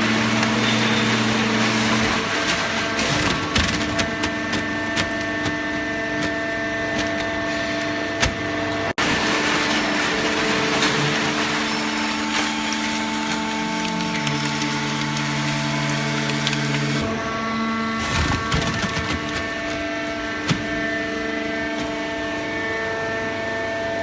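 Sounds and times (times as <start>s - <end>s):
baler motor and pump humming: 0.0s - 24.0s
clicks and cracks: 12.4s - 17.1s.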